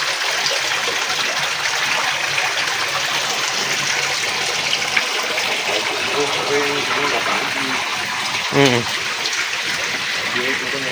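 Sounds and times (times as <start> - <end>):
water rushing: 0.0 - 10.9.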